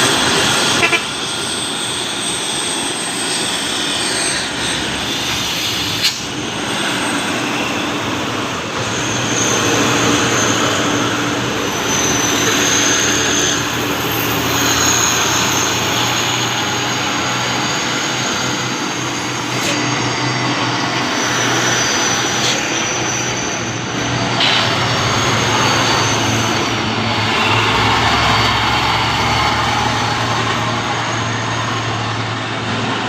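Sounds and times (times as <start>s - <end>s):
diesel truck engine running: 8.0s - 33.0s.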